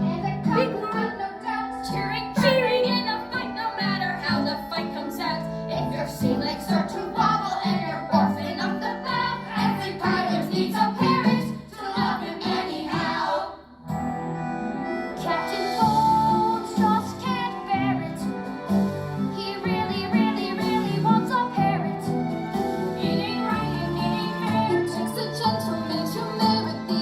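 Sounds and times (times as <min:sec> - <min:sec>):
group singing a song: 0:06.0 - 0:13.9, 0:15.2 - 0:18.4, 0:19.3 - 0:27.0
instrumental accompaniment with bass: 0:13.9 - 0:27.0.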